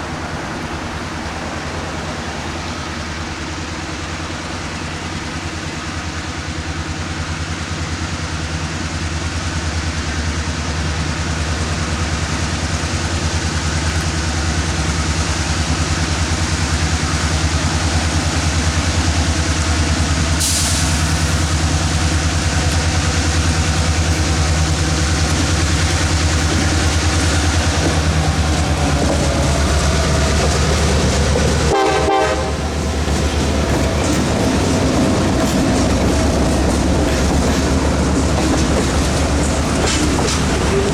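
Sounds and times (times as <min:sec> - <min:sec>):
diesel locomotive engine: 0:00.0 - 0:40.9
brief hiss: 0:20.4 - 0:21.6.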